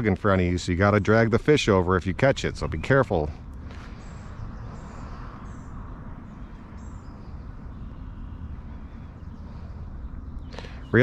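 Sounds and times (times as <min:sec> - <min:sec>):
steady low rumble: 0:00.0 - 0:11.0
high bird chirps: 0:03.7 - 0:11.0.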